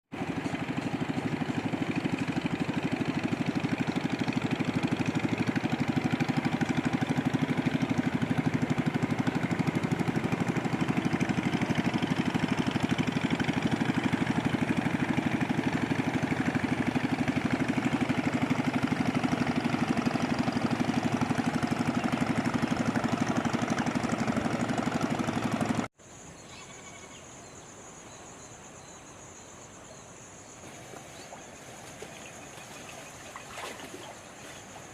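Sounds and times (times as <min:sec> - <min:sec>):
small engine running: 0:00.1 - 0:25.9
insect trill: 0:26.0 - 0:34.9.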